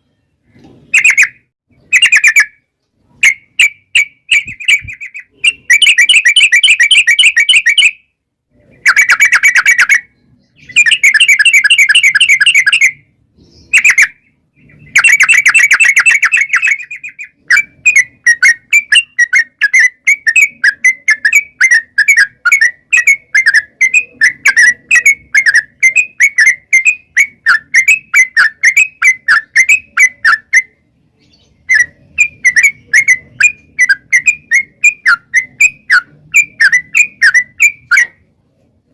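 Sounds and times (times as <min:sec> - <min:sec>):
bird chattering trills: 0:00.5 - 0:02.6, 0:03.2 - 0:08.0, 0:08.6 - 0:38.2.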